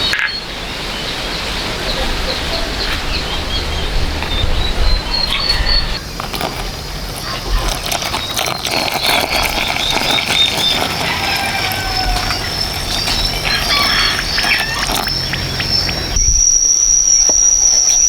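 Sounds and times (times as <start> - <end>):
bird chirping: 9.5 - 16.4.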